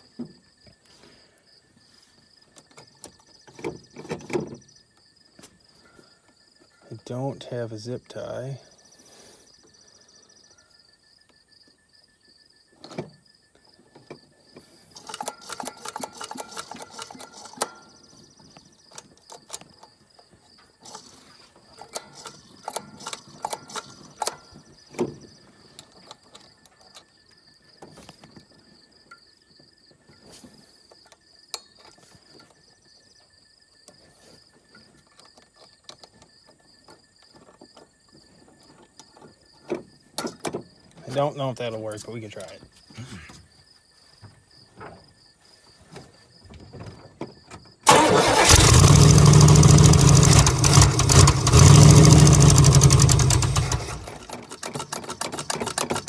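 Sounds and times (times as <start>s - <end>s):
clicks and rattles of car parts: 46.8s - 56.0s.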